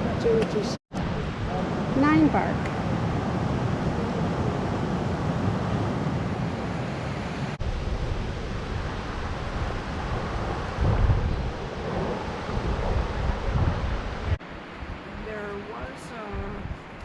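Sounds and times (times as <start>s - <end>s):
wind buffeting microphone: 0.0s - 17.0s
low rumble: 7.6s - 15.5s.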